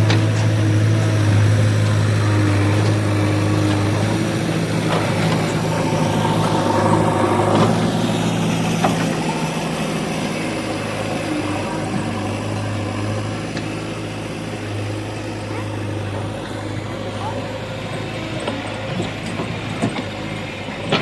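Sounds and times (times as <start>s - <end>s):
heavy vehicle engine running: 0.0s - 21.0s.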